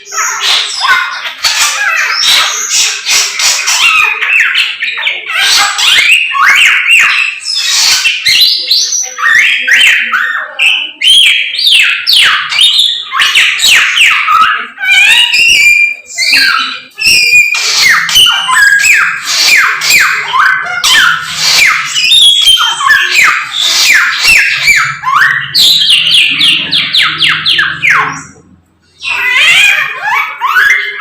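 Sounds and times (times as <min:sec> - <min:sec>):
songbird singing whistled notes: 0:05.8 - 0:28.4.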